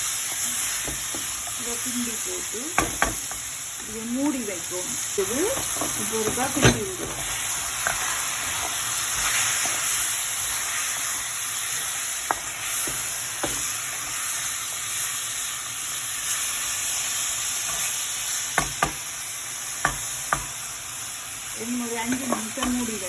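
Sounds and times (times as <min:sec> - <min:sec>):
food sizzling in oil: 0:00.0 - 0:23.0
spoon knocking against pan: 0:02.8 - 0:03.4, 0:19.8 - 0:20.5.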